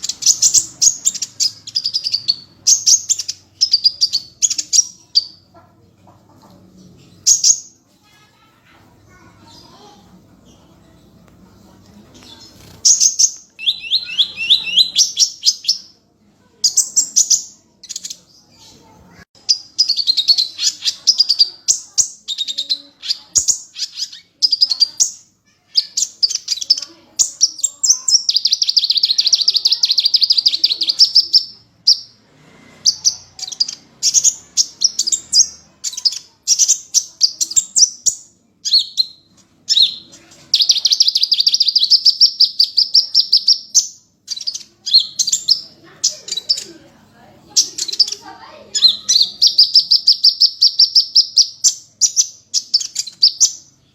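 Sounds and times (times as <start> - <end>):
songbird high-pitched trills: 12.6 - 16.0, 32.9 - 46.6.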